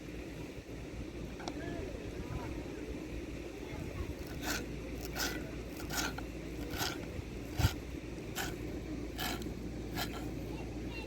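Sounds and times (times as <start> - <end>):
scraping strokes: 4.1 - 10.4.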